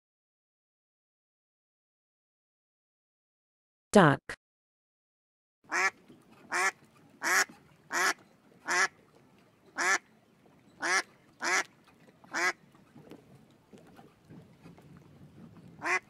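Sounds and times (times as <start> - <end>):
duck quacking: 5.7 - 9.0, 9.8 - 10.0, 10.8 - 11.7, 12.3 - 12.6, 15.8 - 16.0.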